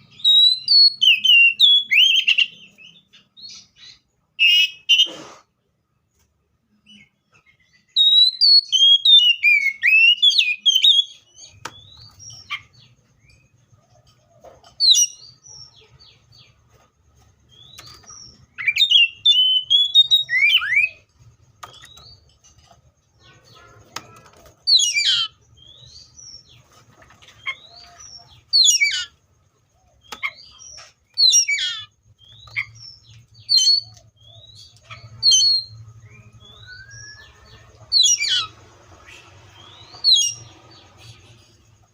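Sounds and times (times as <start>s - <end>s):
bird singing whistled phrases: 0.2s - 2.5s, 7.9s - 11.2s, 18.6s - 21.0s, 33.4s - 37.4s.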